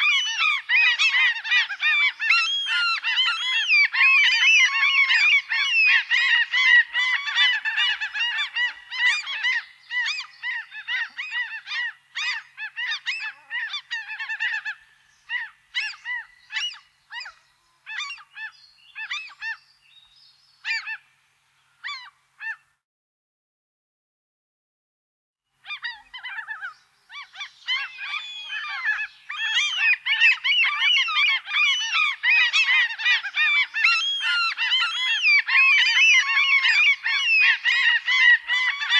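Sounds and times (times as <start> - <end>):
birds honking: 25.8 - 38.9.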